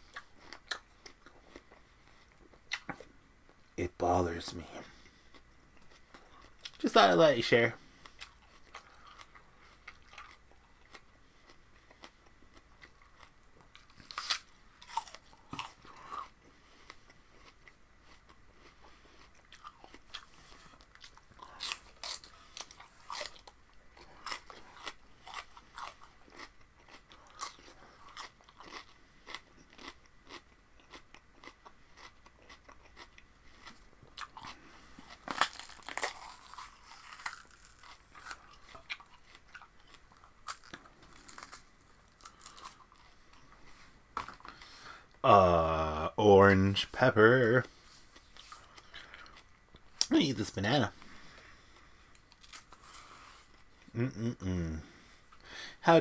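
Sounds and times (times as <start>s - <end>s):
person chewing raw vegetables: 0.0s - 3.6s, 4.9s - 6.8s, 7.9s - 46.1s, 46.9s - 50.1s, 50.9s - 55.6s.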